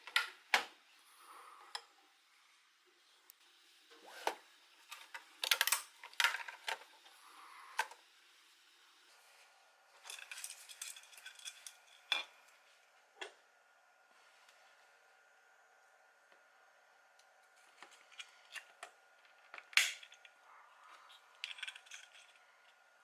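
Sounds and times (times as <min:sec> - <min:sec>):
small hard objects clattering: 0:10.0 - 0:12.3.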